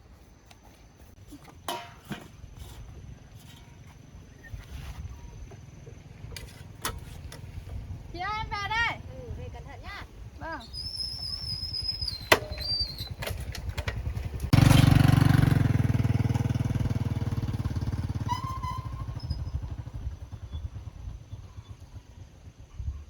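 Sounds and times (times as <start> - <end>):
small motorcycle engine: 11.9 - 22.9.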